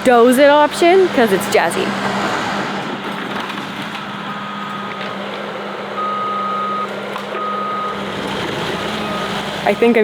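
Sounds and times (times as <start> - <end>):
diesel engine running: 0.0 - 10.0
backup alarm beeps: 4.0 - 5.2, 6.0 - 8.1, 8.8 - 10.0.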